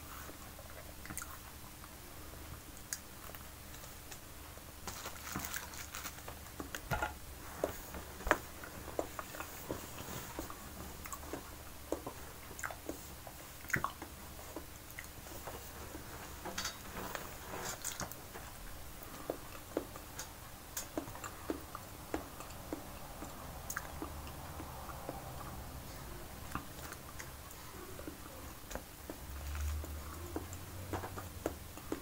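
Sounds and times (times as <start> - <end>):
faint low hum: 0.0 - 32.0
person chewing banana: 8.5 - 15.2, 18.9 - 32.0.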